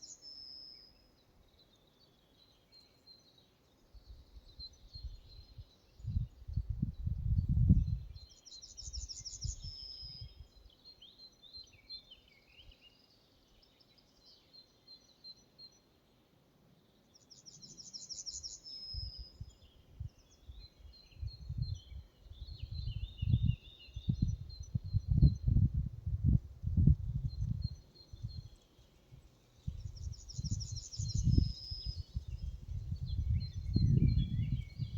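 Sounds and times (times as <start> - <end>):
songbirds singing: 0.0 - 34.9
wind rumble on microphone: 4.0 - 10.6, 18.8 - 34.9.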